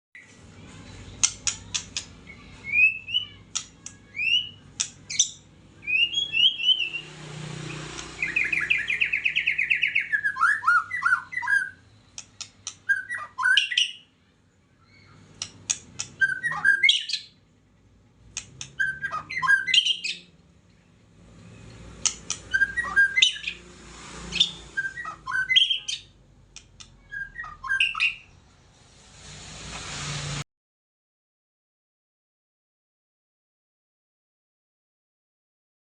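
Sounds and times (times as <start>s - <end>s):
bird singing: 0.2s - 17.5s, 18.5s - 23.7s, 24.3s - 26.2s, 26.8s - 28.4s.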